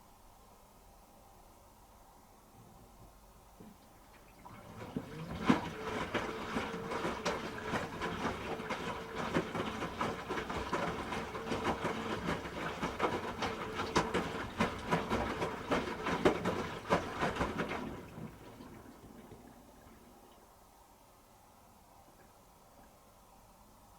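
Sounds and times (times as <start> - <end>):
wet laundry knocking and sloshing: 3.6 - 20.2
motor hum: 3.6 - 20.4
washing machine drum turning: 4.4 - 18.8.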